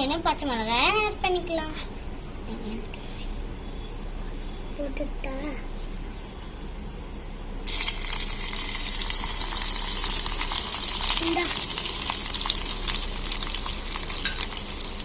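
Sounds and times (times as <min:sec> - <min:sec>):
vegetables sizzling in hot oil: 0:07.6 - 0:15.0.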